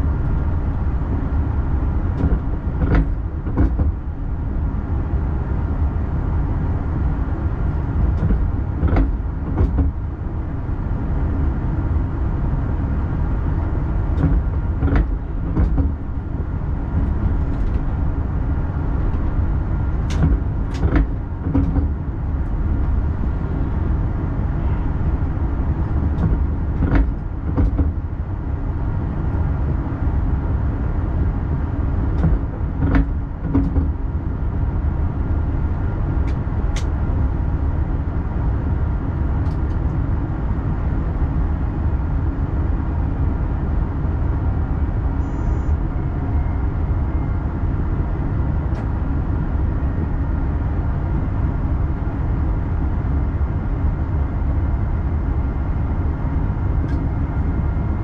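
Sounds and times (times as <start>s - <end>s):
train low rumble: 0.0s - 58.0s.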